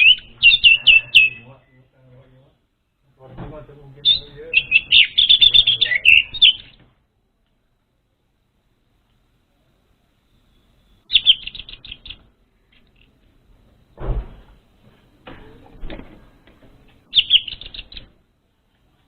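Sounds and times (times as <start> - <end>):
bird rapid chirping: 0.0 - 1.8, 4.0 - 6.8, 10.4 - 13.0, 17.1 - 18.2.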